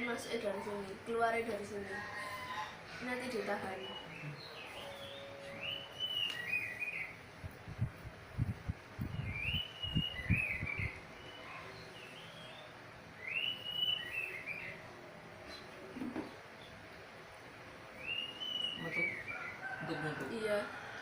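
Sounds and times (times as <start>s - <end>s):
bird singing whistled phrase: 9.1s - 11.4s, 13.2s - 14.7s, 18.0s - 19.4s.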